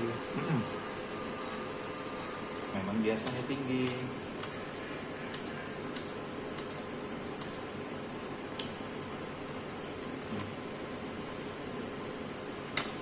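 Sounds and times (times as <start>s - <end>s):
low machine hum: 0.0s - 13.0s
electronic key-press beeps: 3.3s - 4.7s, 5.3s - 7.7s, 8.6s - 8.9s.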